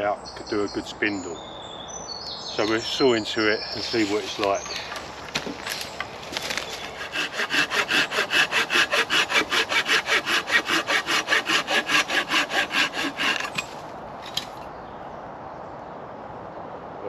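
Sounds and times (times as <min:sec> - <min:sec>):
hand saw cutting wood: 0:06.8 - 0:13.8.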